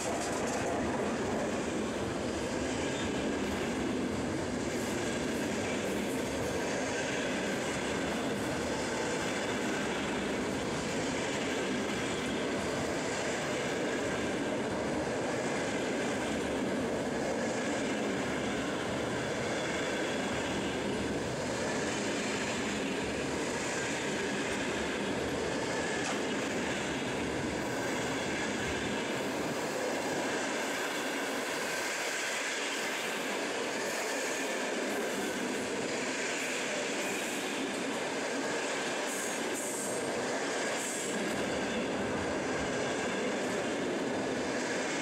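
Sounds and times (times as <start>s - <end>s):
train wheels rumbling on rail: 0.0s - 45.0s.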